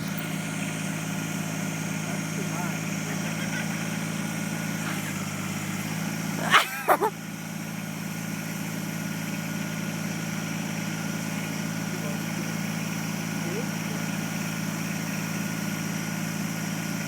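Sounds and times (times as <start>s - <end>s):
engine idling: 0.0s - 17.0s
dog barking: 6.4s - 7.1s.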